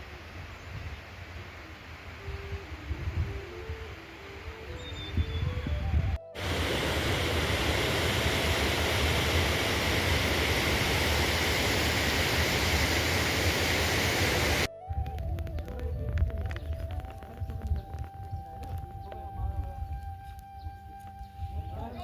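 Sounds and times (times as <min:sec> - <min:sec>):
loud rushing water: 0:06.4 - 0:14.7.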